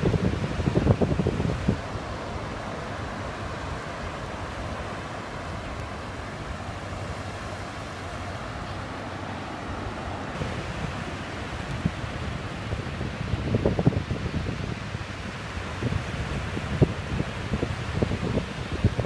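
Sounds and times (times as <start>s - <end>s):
ocean surf: 0.0s - 19.0s
sea wind: 0.0s - 19.0s.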